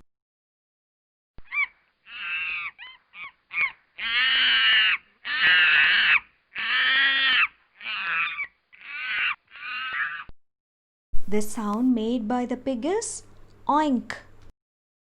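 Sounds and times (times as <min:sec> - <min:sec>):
monkey calls: 0:01.4 - 0:10.3.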